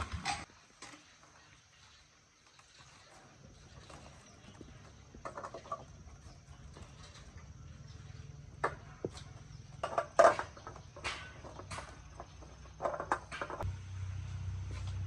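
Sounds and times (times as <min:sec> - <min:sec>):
sharp knocks and clatters: 0:08.6 - 0:13.7.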